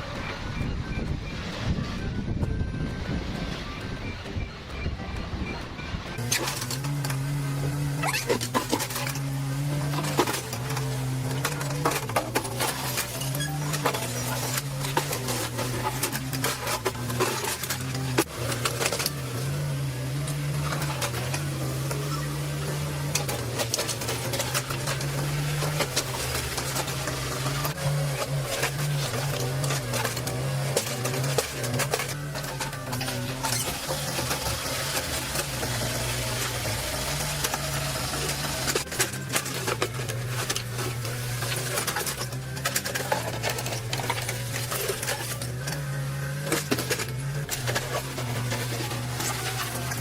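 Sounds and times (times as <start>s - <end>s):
diesel engine running: 0.0s - 50.0s
demolition debris crunching: 5.6s - 50.0s.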